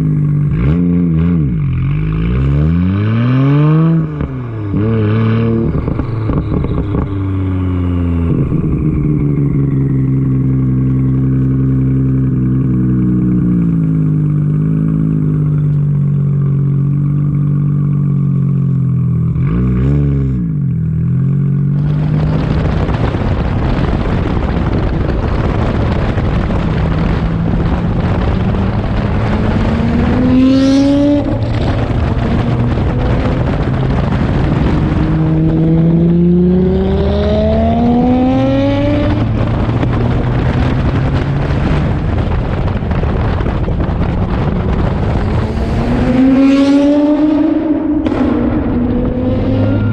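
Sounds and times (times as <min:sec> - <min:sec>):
sports car engine: 0:00.0 - 0:49.9
loud rushing noise: 0:21.8 - 0:49.9.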